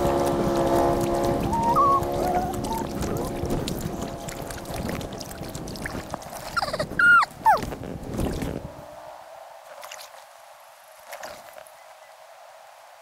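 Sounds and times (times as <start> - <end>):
sped-up kayak paddling: 0.0 - 9.0
squeaky fast-forwarded voices: 1.4 - 3.4, 6.6 - 7.6.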